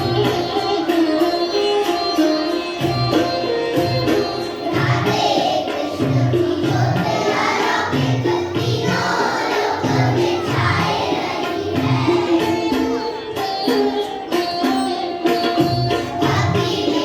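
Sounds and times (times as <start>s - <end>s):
children singing devotional song: 0.0s - 1.9s, 3.8s - 17.0s
held instrumental notes: 0.0s - 17.0s
regular drum beat: 2.8s - 14.0s, 15.5s - 17.0s.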